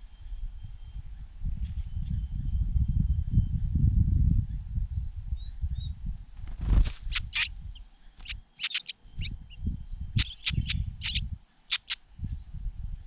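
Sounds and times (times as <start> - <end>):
rumbling and rustling movement: 6.2 - 8.5
sharp bird call notes: 8.2 - 9.3, 10.2 - 12.0.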